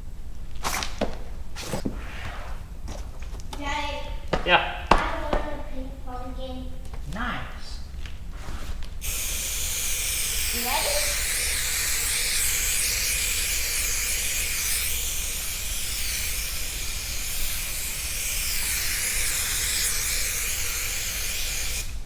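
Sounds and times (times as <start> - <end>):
spray adhesive hissing: 8.4 - 22.0.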